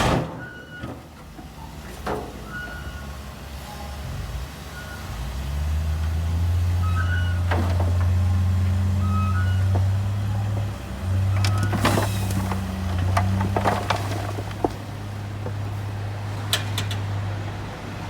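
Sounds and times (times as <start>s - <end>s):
diesel machinery low drone: 0.0s - 18.0s.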